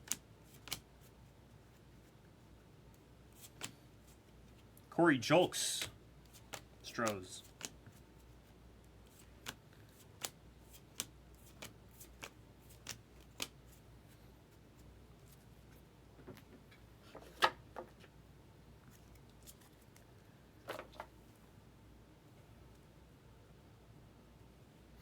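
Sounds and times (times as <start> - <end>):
trading cards clicking: 5.7 - 7.8.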